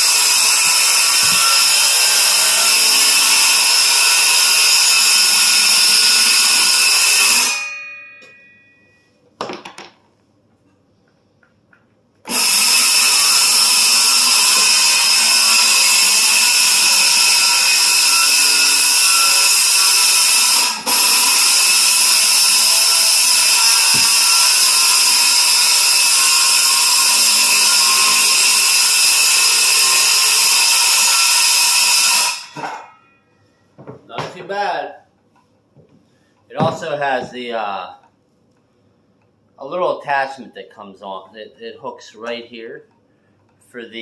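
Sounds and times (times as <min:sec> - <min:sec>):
circular saw whining: 0:00.0 - 0:09.0, 0:12.3 - 0:33.3.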